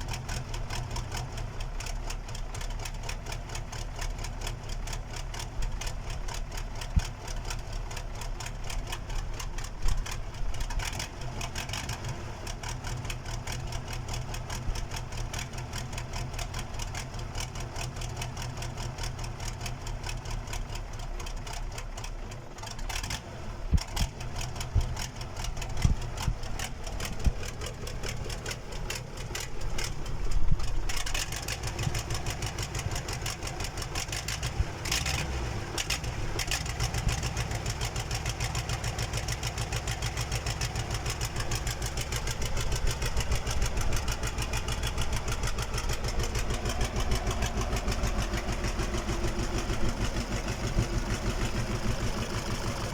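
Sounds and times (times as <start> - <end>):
diesel engine clattering: 0.0 - 52.9
engine knocks: 21.5 - 52.9.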